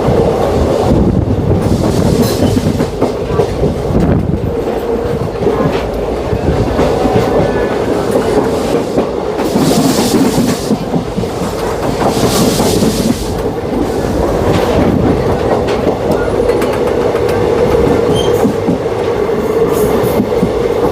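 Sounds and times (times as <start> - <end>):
train rumble: 0.0 - 20.9
train wheels clattering over joints: 1.5 - 20.9.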